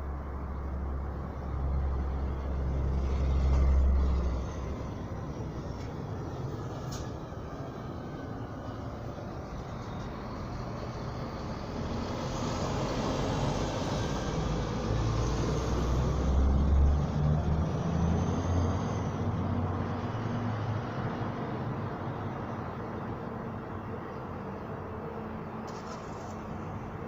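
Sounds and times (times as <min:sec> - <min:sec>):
vehicle passing: 0:10.8 - 0:21.6.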